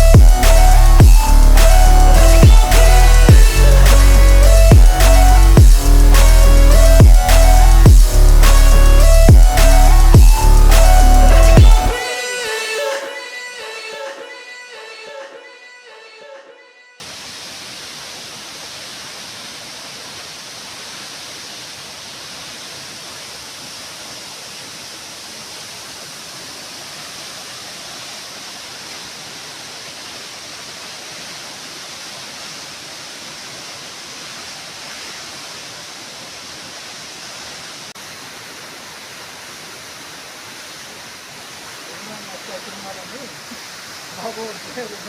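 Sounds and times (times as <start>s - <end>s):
waterfall rushing: 0.0s - 14.6s, 17.0s - 45.0s.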